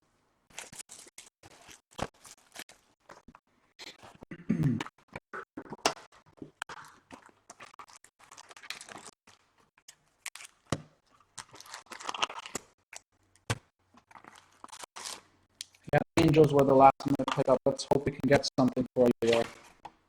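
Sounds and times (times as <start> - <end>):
foil wrappers crinkling: 0.6 - 3.0, 7.6 - 13.0, 14.0 - 15.8.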